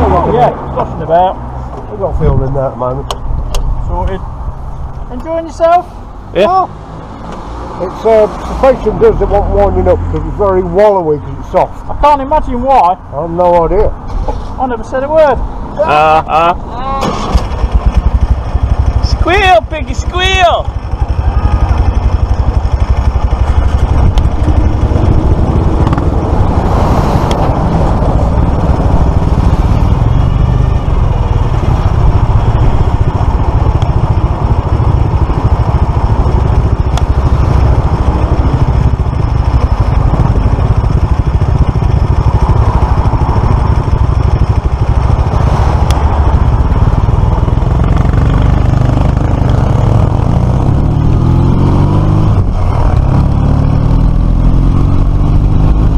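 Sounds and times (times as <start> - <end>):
motorcycle engine running: 17.1 - 55.9
wind rushing over microphone: 21.0 - 55.9.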